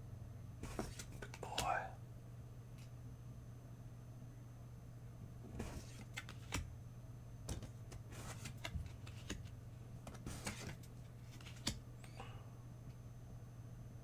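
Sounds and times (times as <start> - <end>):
cards clicking and swishing: 0.6 - 1.7, 5.5 - 6.7, 7.5 - 11.8.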